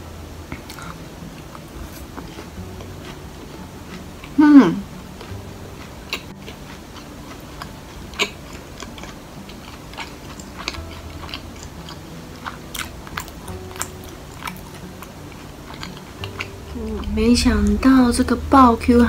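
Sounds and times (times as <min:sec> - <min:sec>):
person chewing food: 0:00.4 - 0:17.8
person humming mmm: 0:04.2 - 0:04.9, 0:16.7 - 0:17.9.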